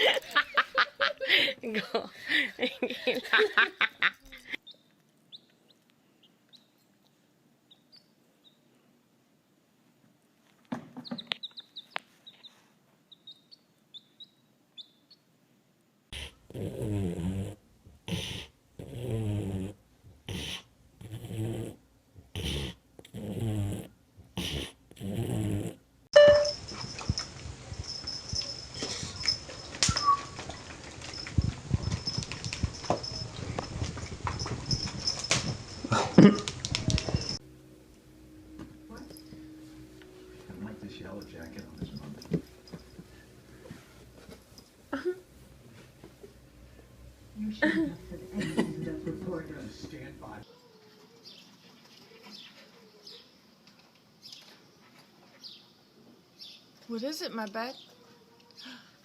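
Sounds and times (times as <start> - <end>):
faint high chirps: 26.2 - 33.5
dog yelping and howling: 29.5 - 30.7
steady high whine: 36.6 - 44.9.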